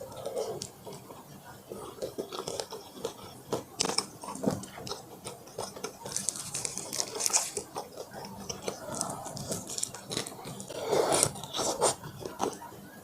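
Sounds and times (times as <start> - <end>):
person chewing crunchy food: 0.0 - 12.8.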